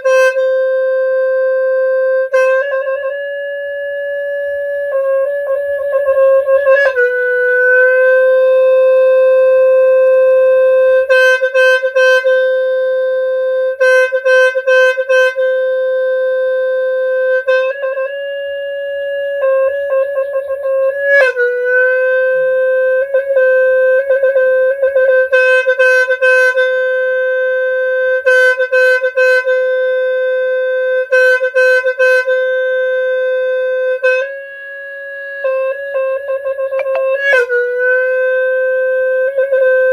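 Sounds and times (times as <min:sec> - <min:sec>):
free-reed horn playing: 0:21.2 - 0:39.9.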